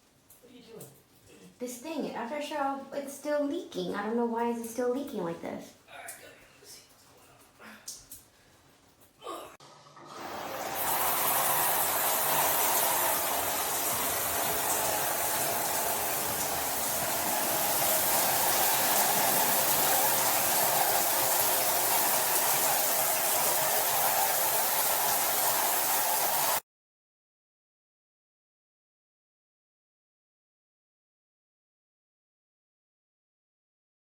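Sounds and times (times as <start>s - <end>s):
shower water splashing: 9.6s - 26.6s.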